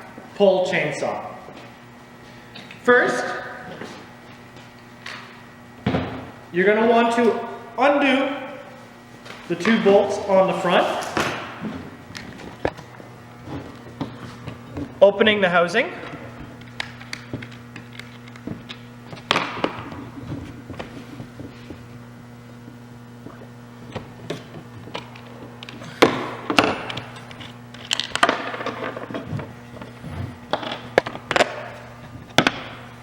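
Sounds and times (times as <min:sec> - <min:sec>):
parts knocking and clicking: 0:16.4 - 0:21.9, 0:22.6 - 0:32.8.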